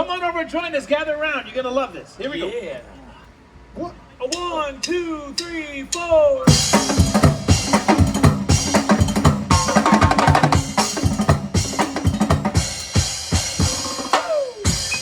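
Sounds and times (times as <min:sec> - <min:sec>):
percussion band drumming: 0:06.5 - 0:15.0.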